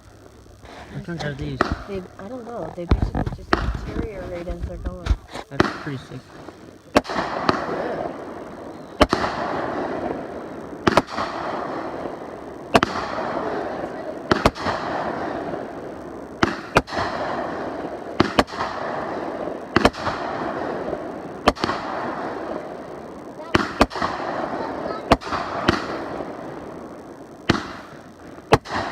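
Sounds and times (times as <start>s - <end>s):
crackling hiss of fireworks: 0.0s - 28.9s
fireworks banging: 0.0s - 28.9s.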